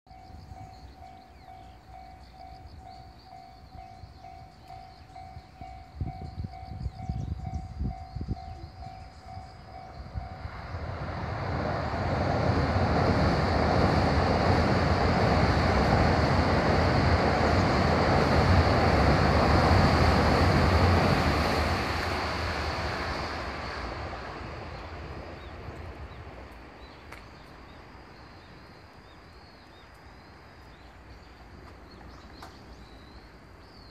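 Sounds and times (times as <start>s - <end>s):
train wheels rumbling on bridge: 0.1s - 27.2s.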